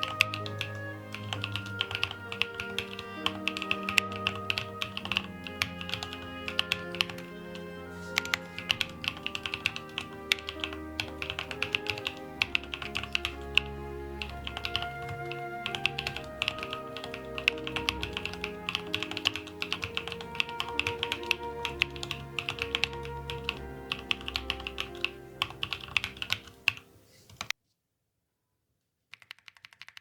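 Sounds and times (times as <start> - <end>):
background music: 0.0 - 27.3
mechanical keyboard typing: 0.0 - 27.5, 29.1 - 30.0.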